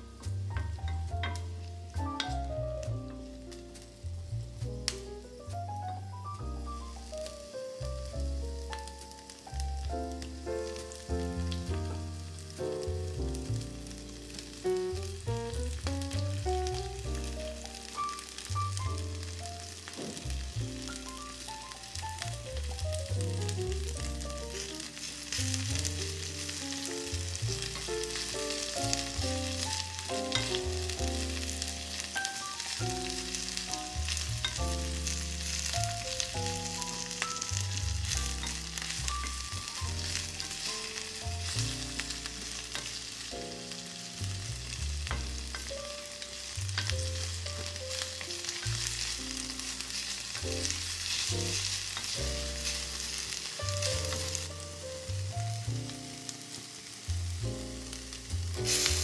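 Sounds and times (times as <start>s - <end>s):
background music: 0.0s - 59.0s
vegetables sizzling in a pan: 0.0s - 59.0s
wooden spoon stirring: 0.6s - 2.4s, 22.6s - 43.3s, 44.2s - 54.6s.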